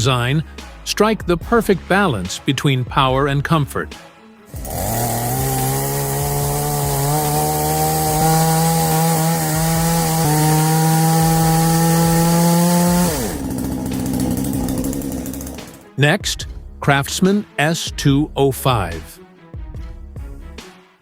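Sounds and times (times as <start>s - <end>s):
chainsaw engine revving: 4.5s - 15.9s.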